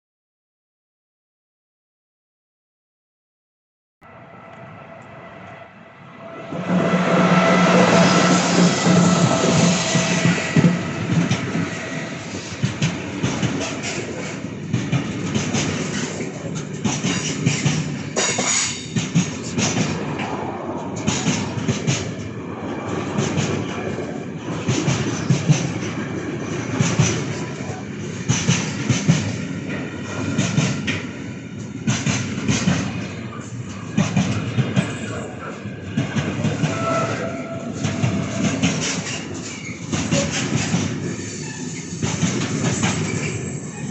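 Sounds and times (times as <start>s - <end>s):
train wheels clacking on rails: 6.6s - 43.9s.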